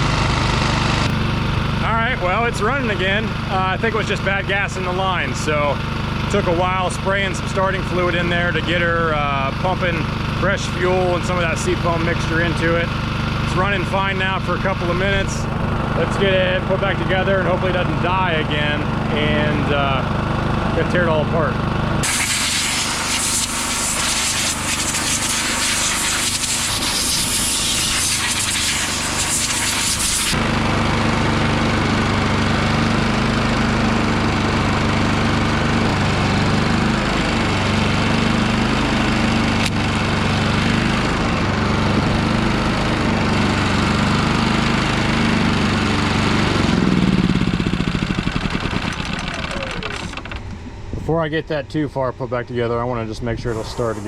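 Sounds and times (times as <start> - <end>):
generator engine hum: 0.0 - 54.0
loud hiss: 22.0 - 30.4, 53.5 - 54.0.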